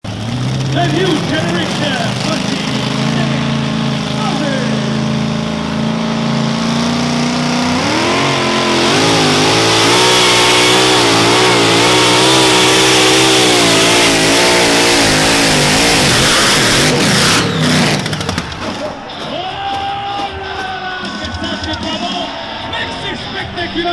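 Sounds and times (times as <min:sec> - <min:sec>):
truck engine at full throttle: 0:00.0 - 0:19.3.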